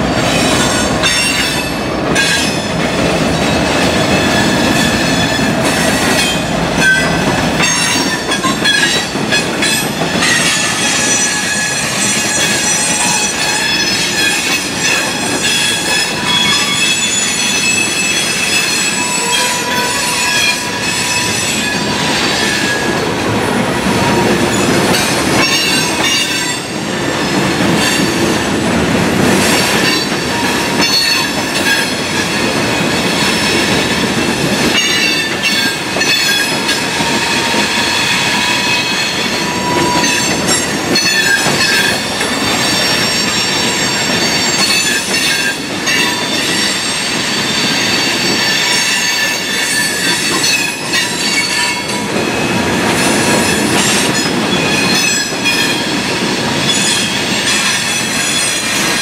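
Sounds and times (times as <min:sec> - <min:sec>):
steel wheels rumbling on rails: 0:00.0 - 0:59.0
high-pitched wheel squeal: 0:07.7 - 0:22.9.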